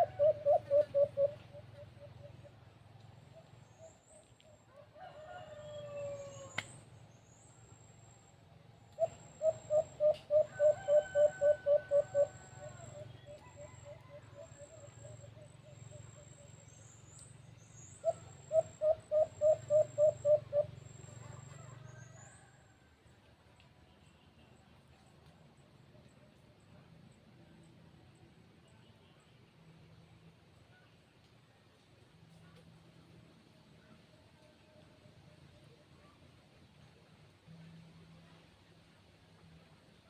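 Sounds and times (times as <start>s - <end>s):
bird hooting notes: 0.0s - 2.3s, 9.0s - 15.2s, 18.0s - 21.0s
rooster crowing: 4.7s - 6.6s, 10.4s - 14.4s.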